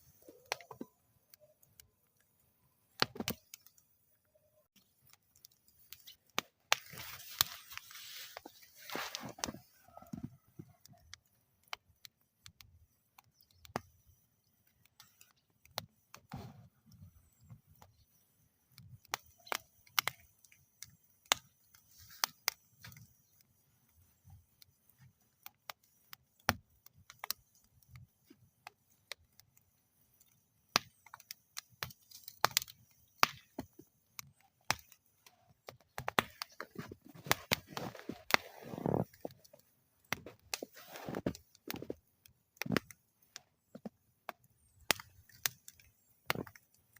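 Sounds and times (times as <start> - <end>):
wood fire crackling and popping: 0.0 - 46.9
low rumble of flames: 35.8 - 46.9.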